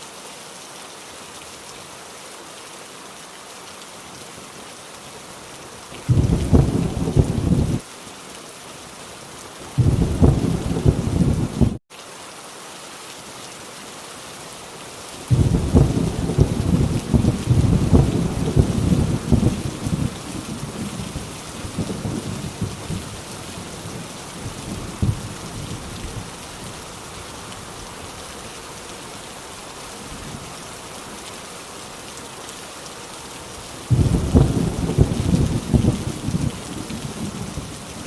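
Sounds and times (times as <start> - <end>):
heavy rain on a tin roof: 0.0 - 38.0
thunder rumbling: 6.1 - 7.8, 9.8 - 11.8, 15.3 - 26.4, 33.9 - 38.0.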